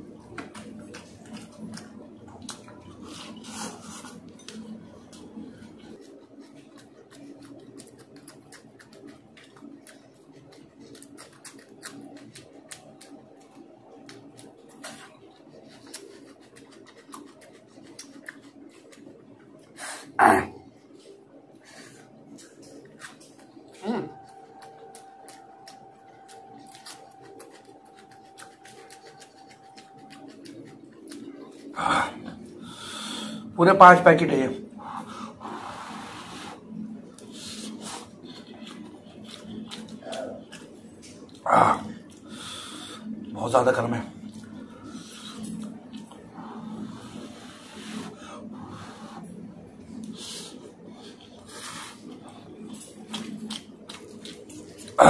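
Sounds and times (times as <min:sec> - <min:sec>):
faint steady whine: 0:00.0 - 0:55.0
crisp food chewing crunches: 0:00.4 - 0:19.7, 0:22.4 - 0:31.7, 0:37.2 - 0:42.3, 0:51.0 - 0:55.0.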